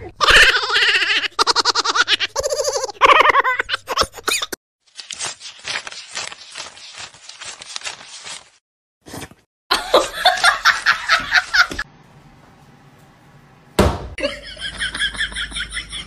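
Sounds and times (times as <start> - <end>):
person laughing: 0.1 - 4.6, 9.7 - 11.8, 14.2 - 16.0.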